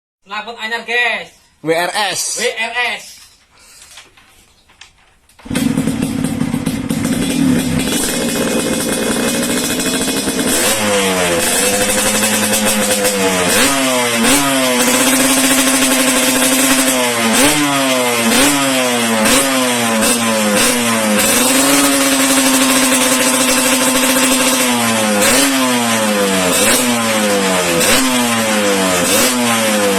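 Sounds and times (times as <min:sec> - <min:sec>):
motorcycle engine idling and revving: 0:05.4 - 0:29.9.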